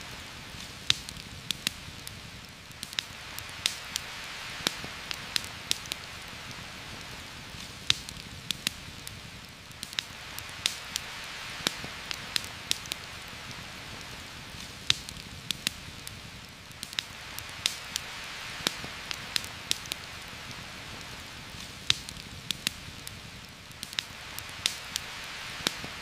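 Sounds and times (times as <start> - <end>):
campfire crackling and popping: 0.0 - 26.0
rain hissing: 0.0 - 26.0.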